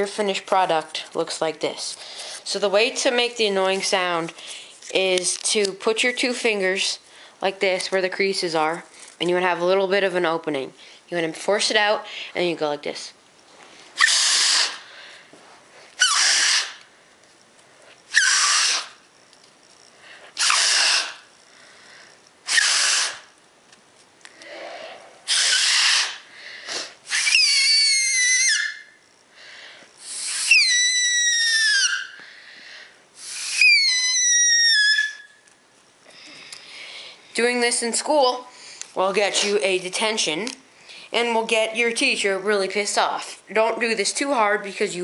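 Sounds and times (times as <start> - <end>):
paper reed whistle blowing: 14.0 - 14.8, 16.0 - 16.8, 18.1 - 19.0, 20.4 - 21.2, 22.5 - 23.3, 25.3 - 26.2, 27.1 - 29.0, 30.0 - 32.2, 33.2 - 35.5.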